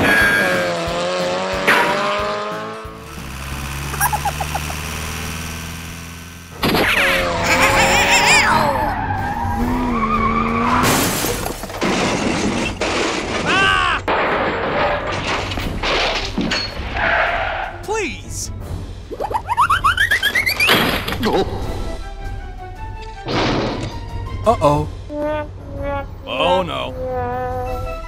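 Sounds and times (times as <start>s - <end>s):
pitched vehicle hum: 0.0s - 12.5s, 25.0s - 28.0s
cartoon sliding tone: 3.9s - 4.8s, 6.8s - 8.9s
rising-and-falling warble: 3.9s - 5.3s.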